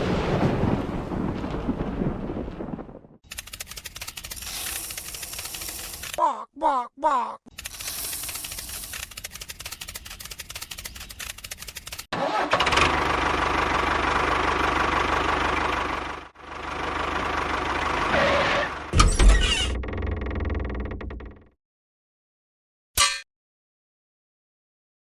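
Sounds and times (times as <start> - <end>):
small machine motor running: 3.4 - 6.2, 7.5 - 12.0.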